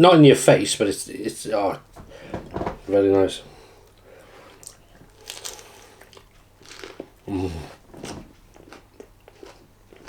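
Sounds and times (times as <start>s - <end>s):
person chewing food: 3.8s - 10.0s
wrapper crinkling: 4.6s - 7.0s
person humming: 7.3s - 7.8s.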